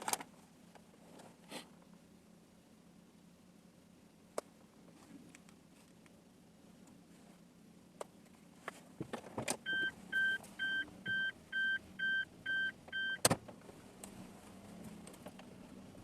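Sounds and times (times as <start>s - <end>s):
short electronic beeps: 9.7s - 13.2s.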